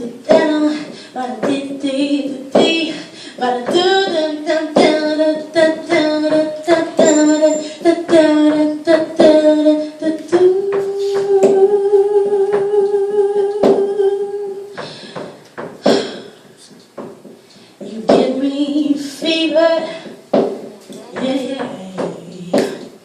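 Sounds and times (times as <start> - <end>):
woman singing without words: 0.0 - 14.8, 17.8 - 20.2.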